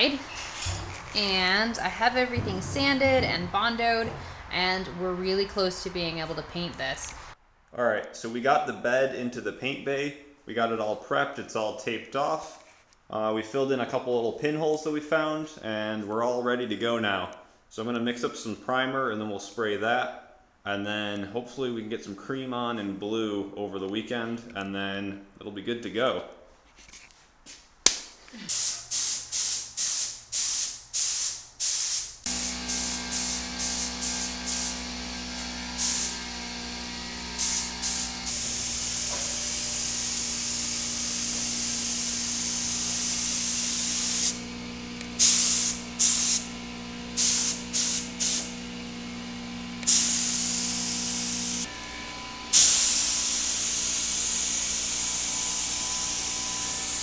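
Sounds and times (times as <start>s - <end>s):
paint spray gun hissing: 28.5s - 57.0s.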